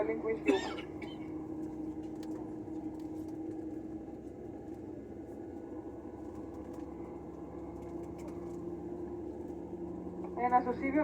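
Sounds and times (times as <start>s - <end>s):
aircraft cabin hum: 0.0s - 11.0s.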